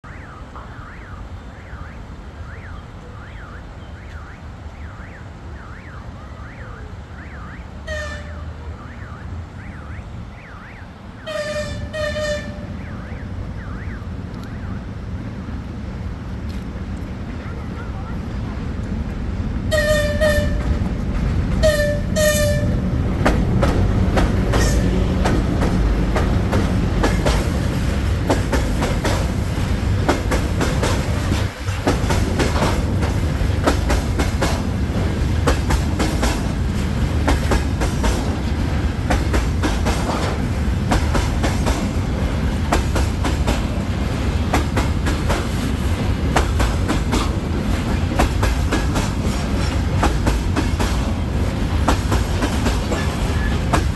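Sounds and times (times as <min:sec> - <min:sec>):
freight train rumbling: 0:00.0 - 0:53.9
train horn blasts: 0:07.2 - 0:14.6, 0:19.7 - 0:20.8, 0:21.6 - 0:22.9
wheels clicking over rail joints: 0:15.4 - 0:53.9.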